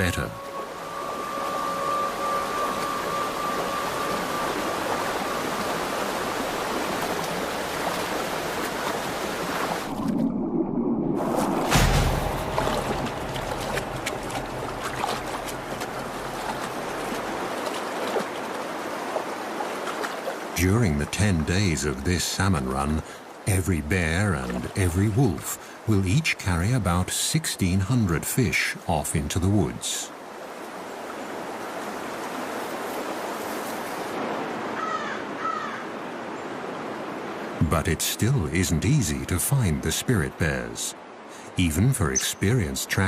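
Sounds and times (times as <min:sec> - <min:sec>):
creek water running: 0:00.0 - 0:10.5, 0:11.2 - 0:43.0
small water splashes: 0:11.2 - 0:20.6.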